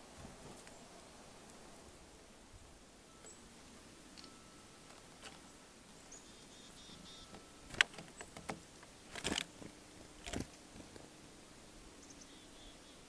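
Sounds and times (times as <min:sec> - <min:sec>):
small birds chirping faintly: 0:00.0 - 0:13.0
sharp clicks: 0:07.3 - 0:10.6.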